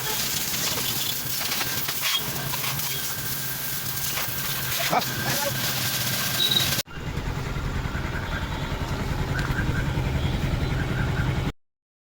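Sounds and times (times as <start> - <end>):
motorcycle engine running: 3.6 - 11.5.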